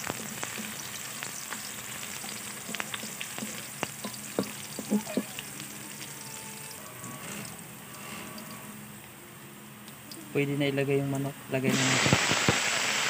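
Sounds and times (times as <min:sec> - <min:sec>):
garlic and onion sizzling in oil: 0:00.0 - 0:10.4, 0:11.6 - 0:13.0
utensil scraping a pan: 0:06.7 - 0:08.8.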